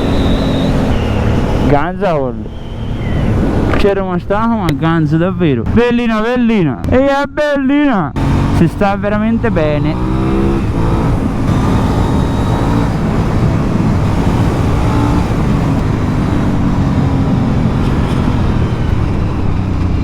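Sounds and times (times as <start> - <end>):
motorcycle engine running: 0.0 - 1.7, 8.2 - 20.0.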